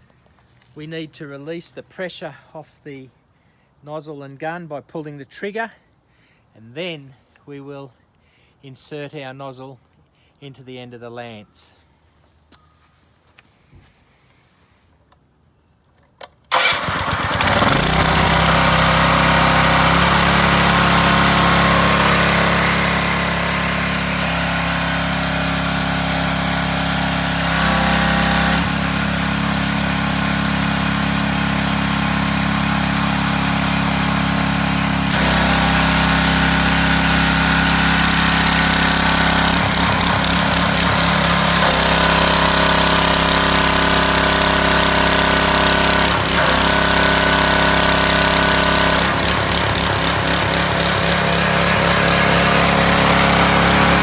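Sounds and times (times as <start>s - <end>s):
pressure washer engine running: 16.5s - 54.0s.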